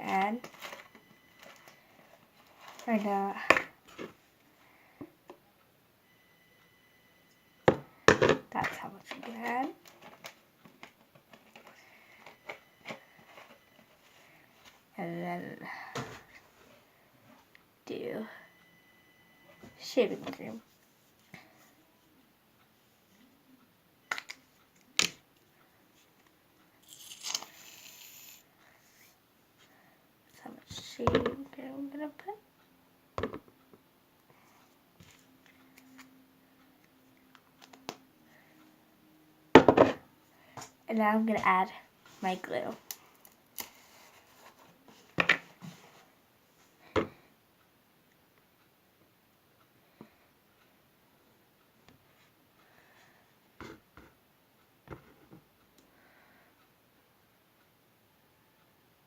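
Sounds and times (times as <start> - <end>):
aerosol shaving cream hissing: 26.9 - 28.4.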